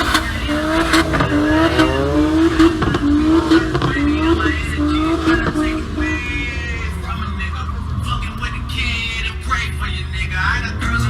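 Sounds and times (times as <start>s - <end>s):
car engine revving: 0.0s - 11.0s
faint voices: 0.0s - 11.0s.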